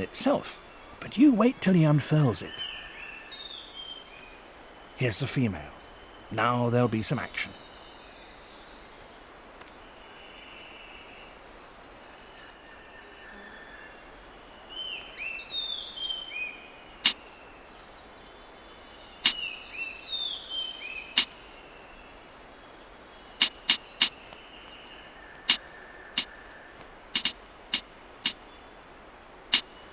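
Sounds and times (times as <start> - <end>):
distant bird calls: 0.0 - 29.9
bird calls sliding downward: 23.4 - 24.2, 27.2 - 27.4
loud sharp snaps: 25.5 - 28.4.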